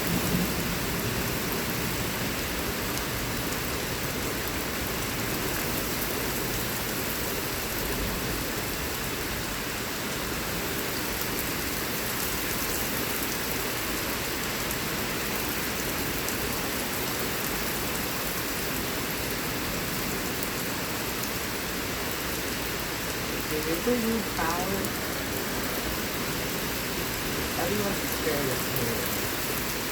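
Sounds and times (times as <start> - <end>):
heavy rain pouring: 0.0 - 29.9.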